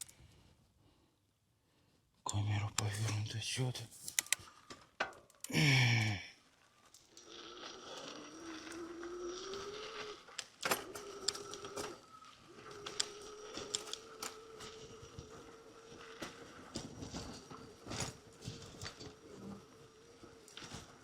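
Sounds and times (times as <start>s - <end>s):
electric bicycle hub motor whining: 7.1s - 21.0s.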